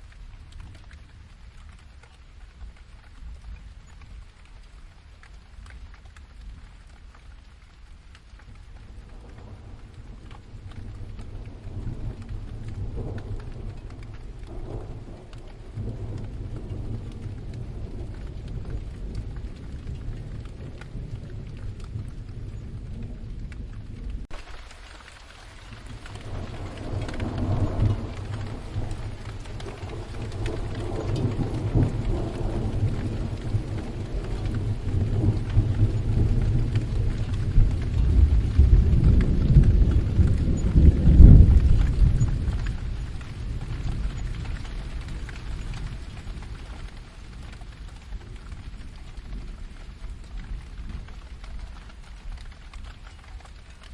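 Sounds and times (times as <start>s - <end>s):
steady rain falling: 0.0s - 53.9s
rolling thunder: 8.8s - 24.6s, 25.5s - 52.8s.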